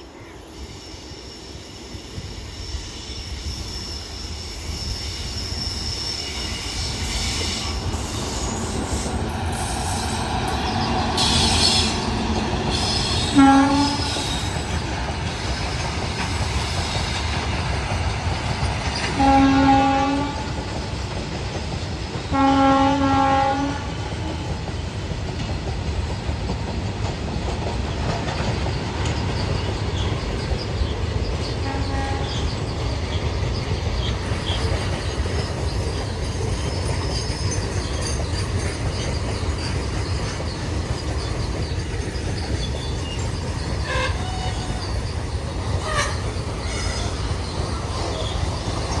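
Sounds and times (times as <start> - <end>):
locomotive horn blasts: 13.1 - 14.3, 19.2 - 20.5, 22.3 - 24.1, 31.6 - 32.4, 43.8 - 44.8, 45.8 - 46.3
freight wagons rumbling: 23.7 - 49.0
wheels squealing: 28.2 - 49.0.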